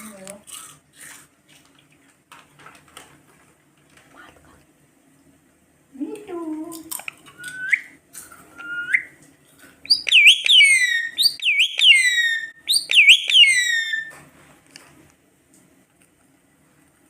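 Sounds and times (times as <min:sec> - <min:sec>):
parrot calling: 0:07.3 - 0:09.2, 0:09.9 - 0:14.1
parrot whistling: 0:07.4 - 0:09.2, 0:09.9 - 0:14.1.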